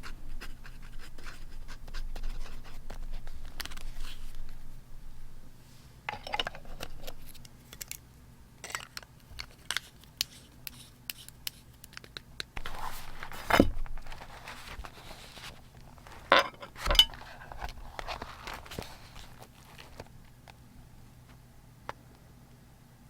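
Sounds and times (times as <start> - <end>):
paper rustling: 0.4 - 4.6, 12.6 - 20.2.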